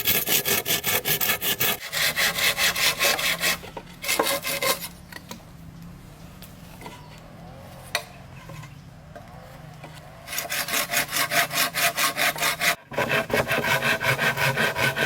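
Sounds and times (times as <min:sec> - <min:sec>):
hand saw cutting wood: 0:00.0 - 0:05.0, 0:10.0 - 0:15.0.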